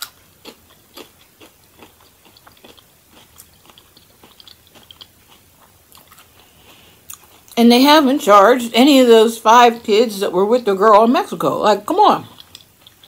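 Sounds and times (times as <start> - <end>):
person chewing crunchy tortilla: 0.0 - 7.6, 12.2 - 13.0.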